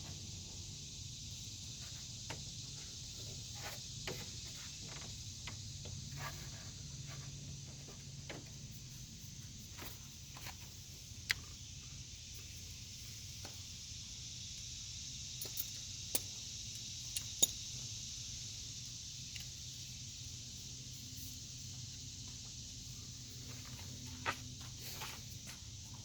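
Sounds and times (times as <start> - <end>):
metallic clicks of hand tools: 15.4 - 17.6.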